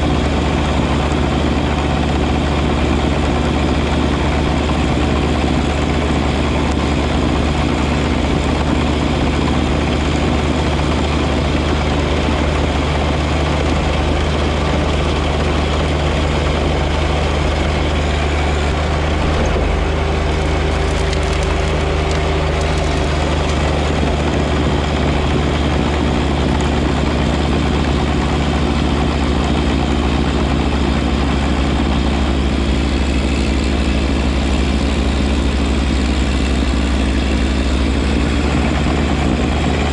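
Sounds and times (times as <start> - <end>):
snow blower rushing: 0.0 - 39.9
tractor engine hum: 0.0 - 39.9.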